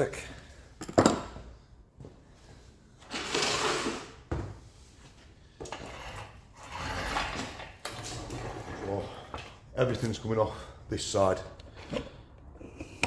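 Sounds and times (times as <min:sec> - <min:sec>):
metal parts rasping and rattling: 0:05.7 - 0:09.5.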